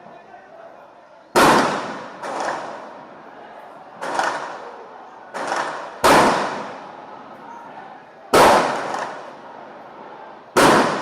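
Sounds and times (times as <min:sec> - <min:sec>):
sharp bangs: 0:01.4 - 0:03.0, 0:04.0 - 0:04.6, 0:05.3 - 0:06.9, 0:08.3 - 0:09.4, 0:10.6 - 0:11.0.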